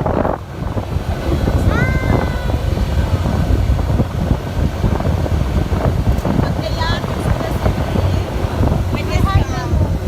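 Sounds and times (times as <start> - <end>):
boat engine rumble: 0.0 - 10.0
wind buffeting microphone: 0.0 - 10.0.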